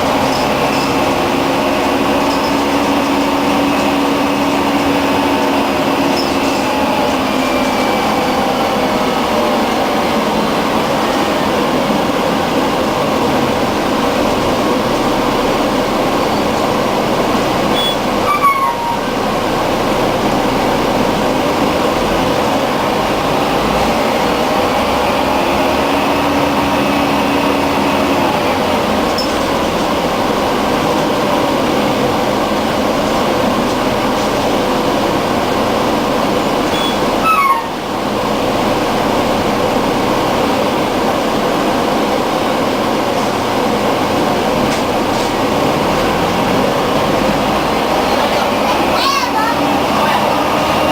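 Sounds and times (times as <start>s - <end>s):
bus diesel engine running: 0.0s - 50.9s
road and air-conditioning noise: 0.0s - 50.9s
short high squeal: 17.8s - 19.1s, 36.7s - 37.8s.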